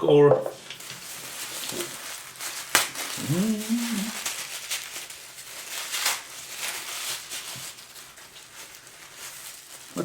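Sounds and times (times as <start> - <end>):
packaging rustling: 0.6 - 10.0
man humming: 3.2 - 4.2.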